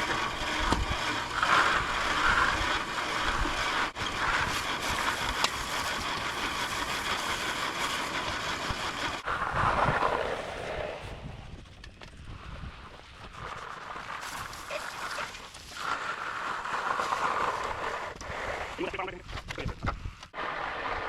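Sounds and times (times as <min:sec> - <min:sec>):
concrete mixer engine running: 0:00.0 - 0:11.4.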